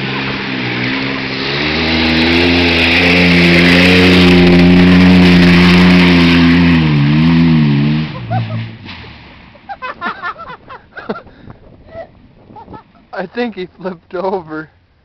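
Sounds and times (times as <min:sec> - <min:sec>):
truck engine revving: 0:00.0 - 0:10.7.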